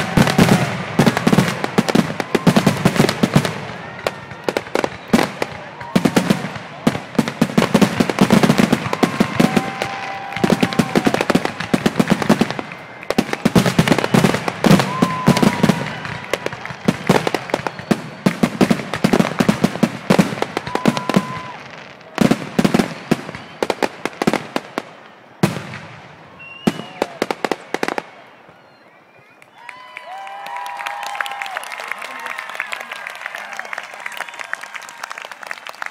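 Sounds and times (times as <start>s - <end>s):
fireworks bursts and bangs: 0.0s - 28.6s
firework whistles: 8.4s - 19.4s, 23.1s - 24.0s, 26.4s - 29.6s.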